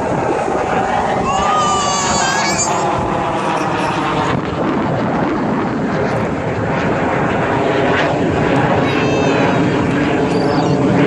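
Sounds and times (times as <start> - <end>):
loud rushing noise: 0.0 - 6.6.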